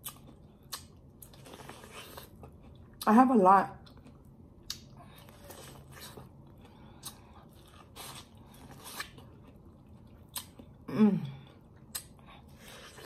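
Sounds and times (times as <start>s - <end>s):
chewing corn on the cob: 3.8s - 10.9s.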